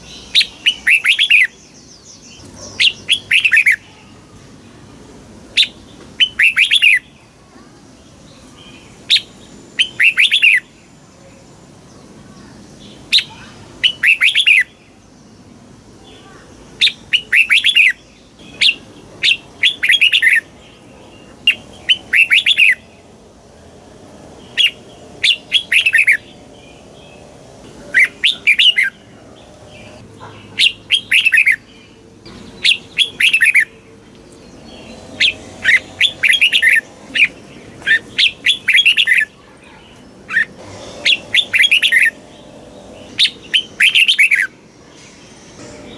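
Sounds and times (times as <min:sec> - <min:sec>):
bulbul whistled song: 0:09.1 - 0:10.6, 0:21.5 - 0:22.9, 0:32.3 - 0:33.7, 0:41.0 - 0:44.6.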